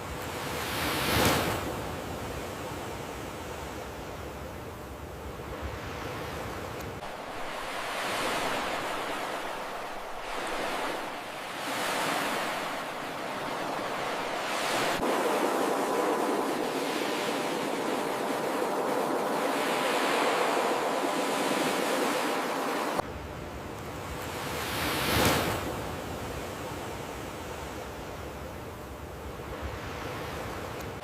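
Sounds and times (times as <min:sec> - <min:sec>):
ocean surf on beach: 0:00.0 - 0:31.0.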